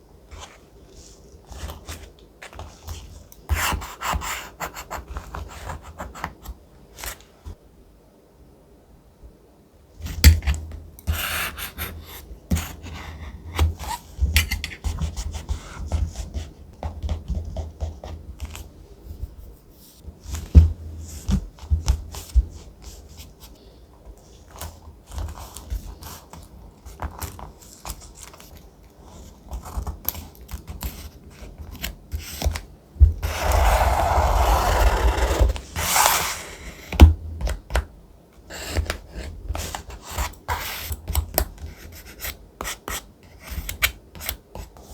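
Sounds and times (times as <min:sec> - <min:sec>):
rubbing on paper: 0:33.2 - 0:36.6.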